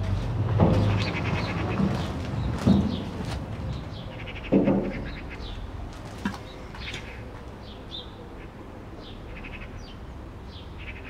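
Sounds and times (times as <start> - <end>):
small birds chirping: 0.6 - 11.0.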